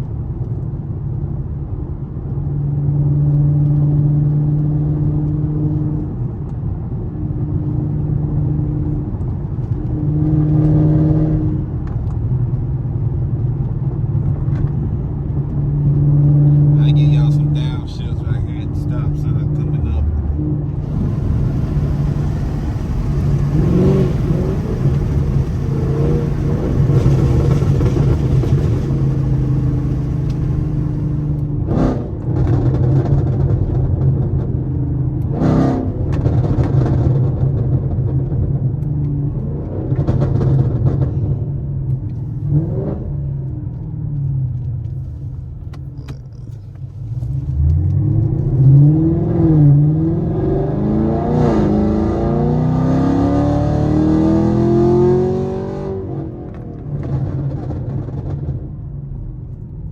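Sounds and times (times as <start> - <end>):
car engine running: 11.8 - 34.4.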